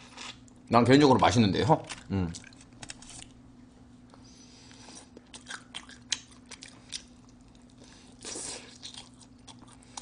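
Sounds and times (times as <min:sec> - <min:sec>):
faint steady hum: 0:00.0 - 0:10.0
close-miked chewing: 0:04.7 - 0:10.0.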